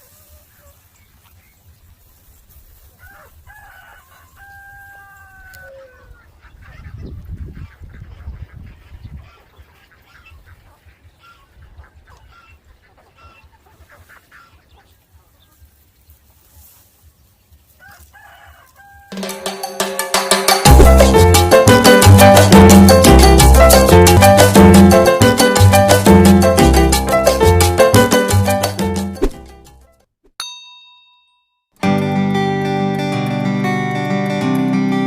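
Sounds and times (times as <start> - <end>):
chickens clucking and chirping: 0.0 - 3.4, 4.2 - 18.1
rooster crowing: 3.0 - 6.2, 17.8 - 20.2.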